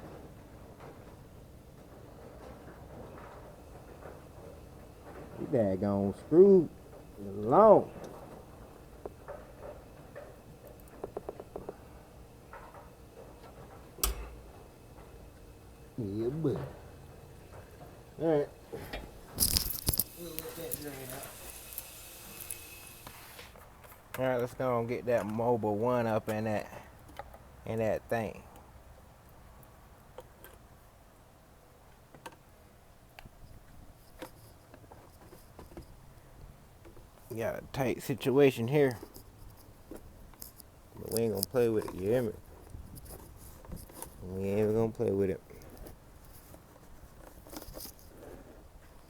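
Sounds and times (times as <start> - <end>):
light tool clicks: 14.0 - 14.3.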